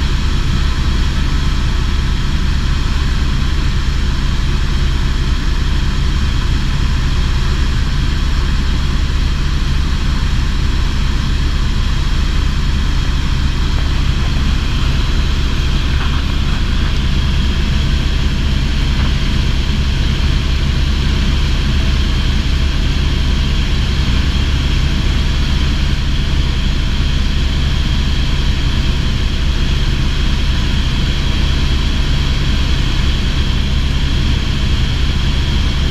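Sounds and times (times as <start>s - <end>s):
helicopter engine and rotor drone: 0.0s - 35.9s.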